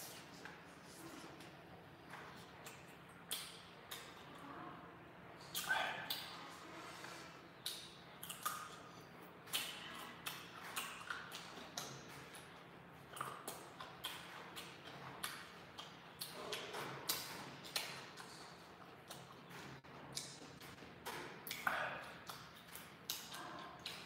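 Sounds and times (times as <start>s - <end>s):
wet mouth clicks: 2.6s - 4.5s, 5.4s - 6.5s, 7.5s - 12.5s, 13.1s - 19.5s, 20.1s - 20.4s, 21.4s - 24.0s.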